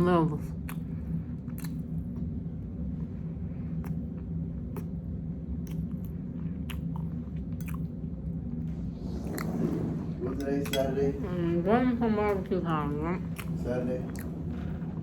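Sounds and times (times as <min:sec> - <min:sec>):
steady low hum: 0:00.0 - 0:15.0
person chewing with mouth smacking: 0:00.6 - 0:02.3, 0:03.8 - 0:05.0, 0:05.6 - 0:08.0, 0:13.3 - 0:14.3.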